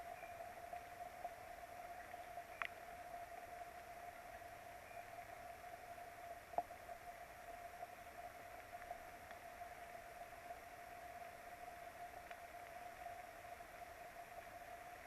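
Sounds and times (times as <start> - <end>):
constant thin whine: 0.0 - 15.0
rain hissing on microphone: 0.0 - 15.0
sharp tick: 2.6 - 2.8.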